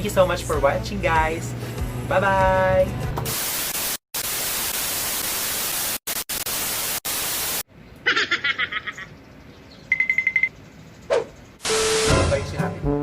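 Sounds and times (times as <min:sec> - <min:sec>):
loud static hiss: 0:03.3 - 0:07.6, 0:11.6 - 0:12.4.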